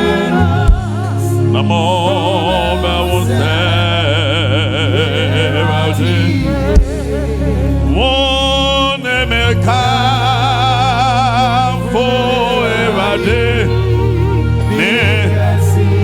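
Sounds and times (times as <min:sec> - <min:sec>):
solo voice singing with vibrato: 0:00.0 - 0:16.0
sustained low accompaniment: 0:00.0 - 0:16.0.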